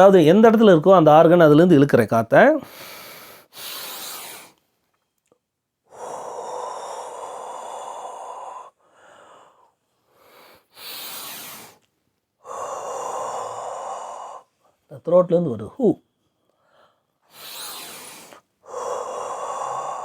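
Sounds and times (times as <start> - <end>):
person breathing in: 5.8 - 11.8, 12.4 - 14.8, 16.4 - 20.0
person exhaling breathily: 5.9 - 11.8, 12.4 - 14.5, 16.6 - 20.0.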